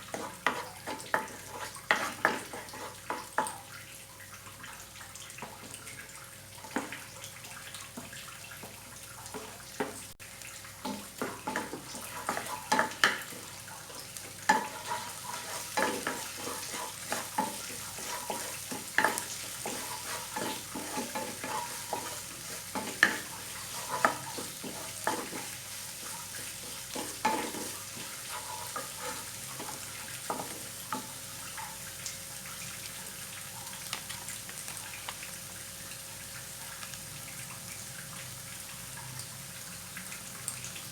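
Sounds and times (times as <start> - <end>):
spatula scraping a pan: 0.0 - 3.5, 10.9 - 31.3
food sizzling in a pan: 0.0 - 40.9.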